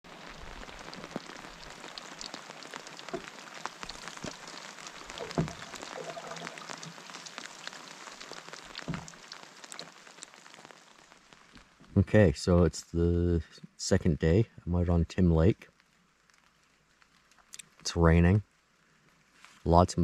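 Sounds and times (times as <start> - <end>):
steady rain: 0.0 - 20.0
raindrops ticking close by: 0.1 - 20.0
loud thuds: 5.2 - 5.8, 8.9 - 9.2.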